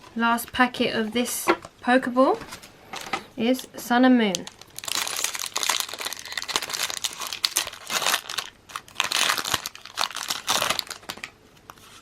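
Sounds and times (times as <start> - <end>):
foil wrapper crinkling: 4.3 - 12.0.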